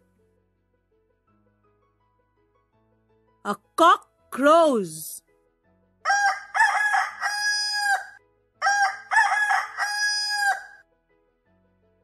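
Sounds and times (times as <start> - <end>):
rooster crowing: 6.1 - 10.8.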